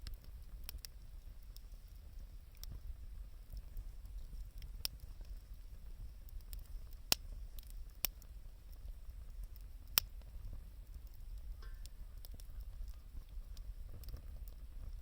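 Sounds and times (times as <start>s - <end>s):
wood fire crackling: 0.0s - 15.0s
sharp pops of fire: 6.3s - 8.2s, 9.4s - 15.0s.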